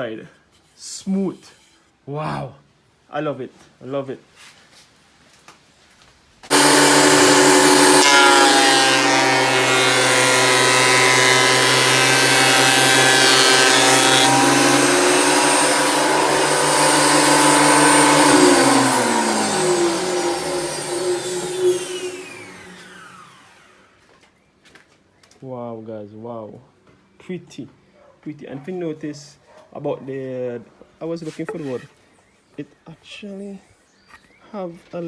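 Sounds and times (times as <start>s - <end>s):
thickness planer motor whine: 6.5s - 24.0s.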